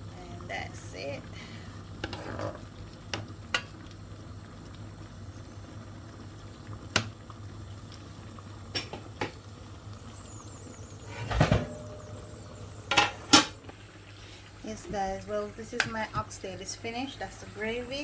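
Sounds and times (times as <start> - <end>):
low hum: 10.0 - 14.1
pot lid clattering: 11.0 - 13.7.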